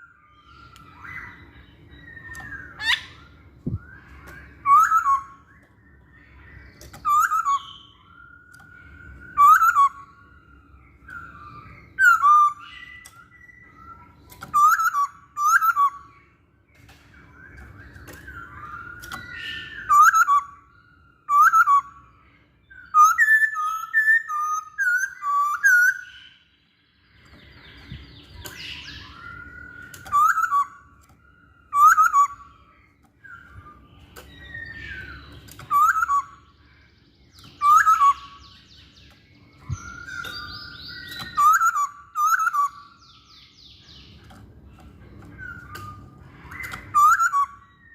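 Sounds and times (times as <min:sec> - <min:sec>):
bird whistling downward notes: 0:00.0 - 0:16.2, 0:17.0 - 0:26.5, 0:27.1 - 0:44.4, 0:45.0 - 0:47.9.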